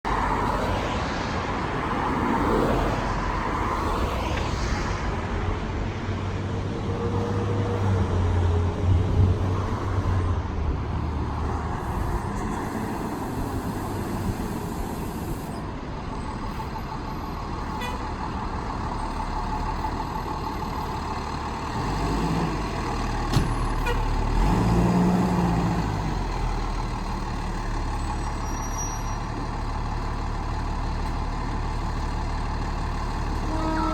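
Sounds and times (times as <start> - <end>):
fire engine running at low speed: 0.0 - 33.9.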